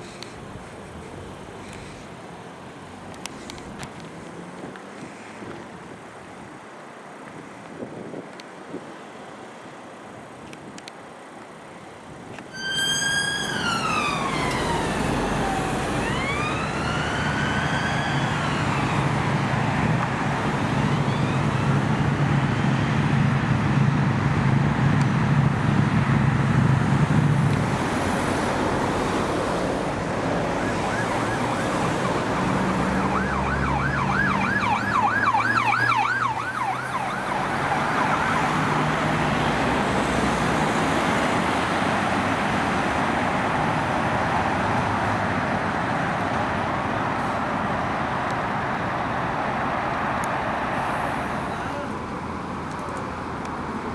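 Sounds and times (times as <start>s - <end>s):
traffic noise: 0.0s - 53.9s
vehicle engine: 11.8s - 53.9s
siren wailing and yelping: 12.5s - 19.5s, 30.4s - 38.8s.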